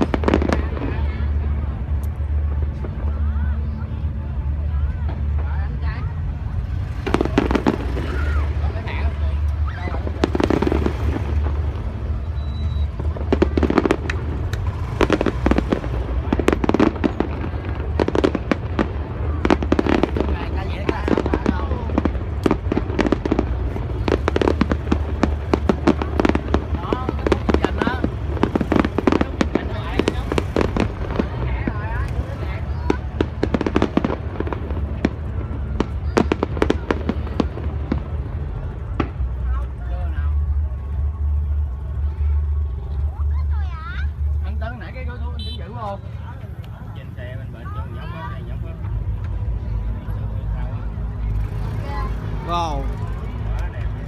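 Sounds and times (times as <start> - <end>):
low rumble: 0.0 - 45.3
fireworks bangs and crackles: 0.0 - 54.0.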